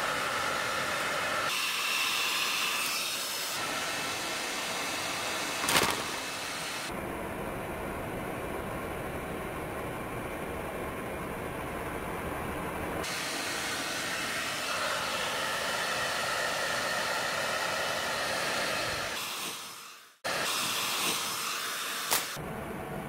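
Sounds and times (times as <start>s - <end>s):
hair dryer running: 0.0s - 6.9s, 13.0s - 22.4s.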